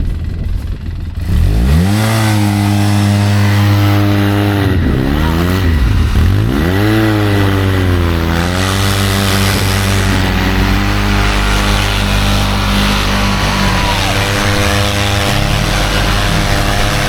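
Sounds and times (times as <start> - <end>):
utility vehicle engine revving: 0.0 - 17.0.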